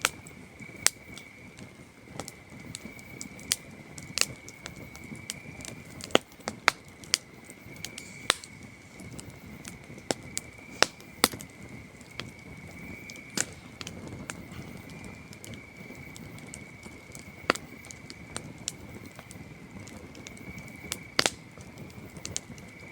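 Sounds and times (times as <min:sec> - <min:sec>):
campfire crackling: 0:00.0 - 0:22.9
crickets trilling: 0:00.0 - 0:22.9.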